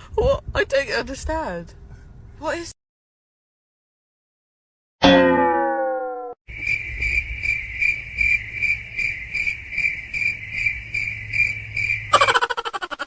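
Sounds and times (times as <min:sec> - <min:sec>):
tone sliding down in pitch: 0:05.0 - 0:06.4
cricket chirping: 0:06.5 - 0:13.0.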